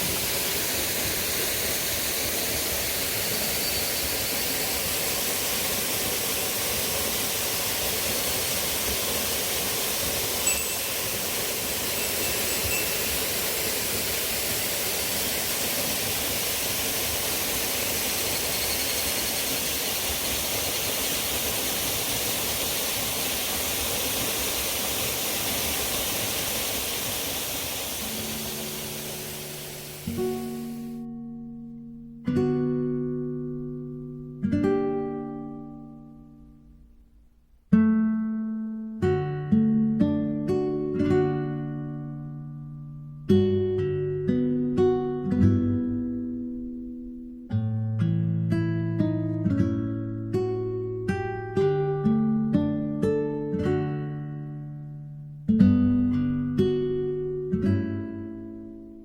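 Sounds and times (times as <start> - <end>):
waterfall rushing onto rock: 0.0 - 30.9
acoustic guitar music: 28.2 - 59.0.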